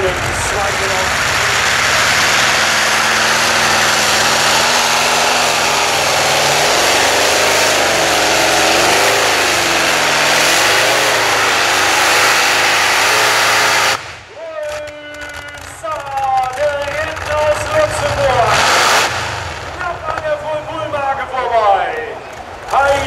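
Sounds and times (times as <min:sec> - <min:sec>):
radial aircraft engine roaring: 0:00.0 - 0:14.3.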